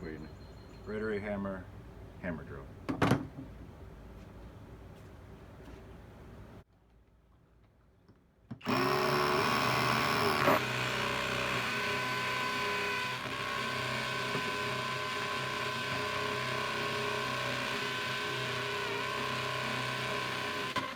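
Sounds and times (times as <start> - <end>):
cordless drill spinning: 8.6 - 20.9.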